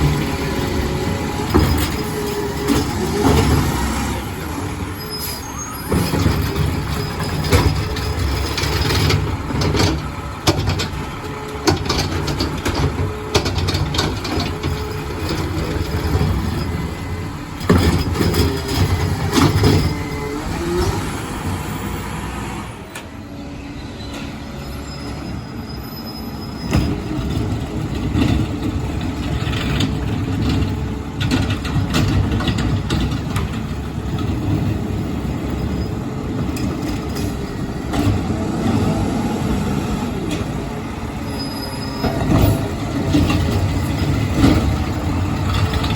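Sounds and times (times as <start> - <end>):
garbage truck diesel engine: 0.0 - 45.9
sharp knocks and clanks: 5.9 - 16.7.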